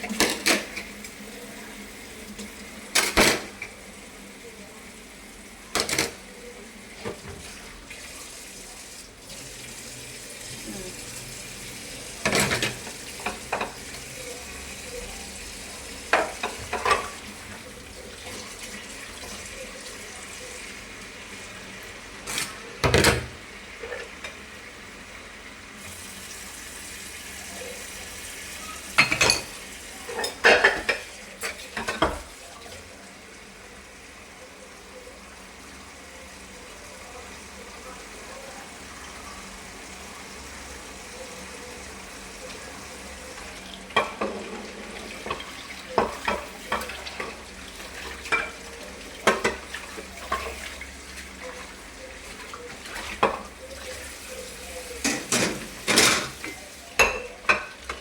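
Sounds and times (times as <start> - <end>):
dishes clinking and clattering: 0.0 - 1.0, 2.4 - 3.8, 5.7 - 6.2, 12.2 - 14.4, 16.0 - 19.5, 22.2 - 24.4, 28.6 - 32.7, 43.8 - 58.0.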